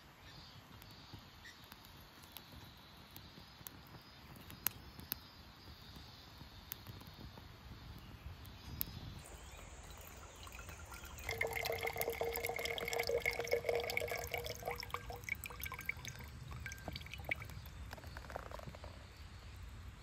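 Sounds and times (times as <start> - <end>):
small clicks and crackles: 0.7 - 12.1, 15.5 - 19.3
liquid pouring: 9.2 - 18.8.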